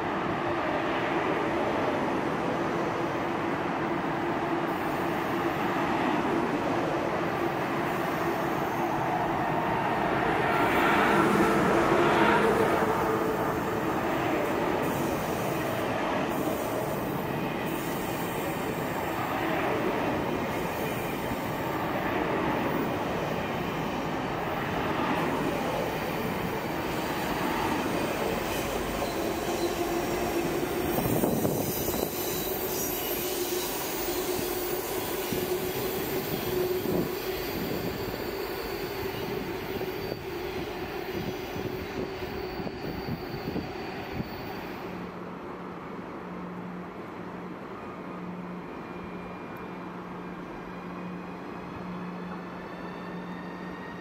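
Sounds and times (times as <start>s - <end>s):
train wheels rumbling: 7.4s - 44.7s
wheel squeal: 28.5s - 45.1s.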